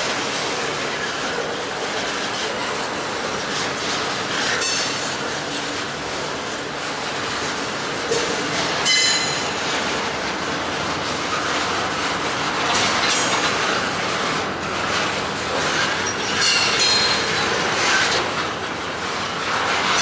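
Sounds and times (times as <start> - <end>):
freight train rumbling and rattling: 0.0 - 20.0
high metallic wheel squeals: 4.4 - 5.2, 8.8 - 9.7, 15.5 - 18.1.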